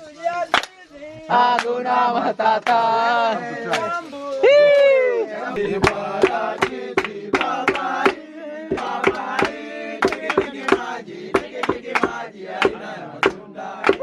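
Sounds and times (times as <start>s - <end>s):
group chanting and singing: 0.0s - 14.0s
pestle pounding in mortar: 8.7s - 14.0s.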